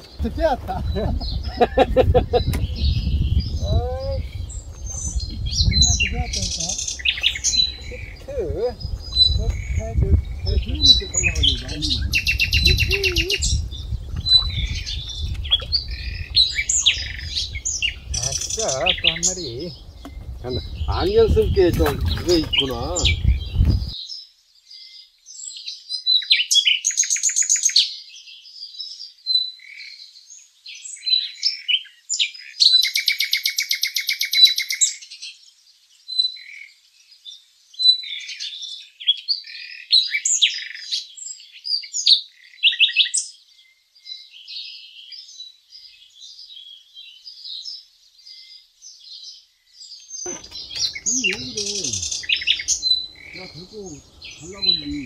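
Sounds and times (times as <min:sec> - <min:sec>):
songbirds chirping: 0:00.0 - 0:55.0
rapid buzzy bird trill: 0:50.3 - 0:55.0.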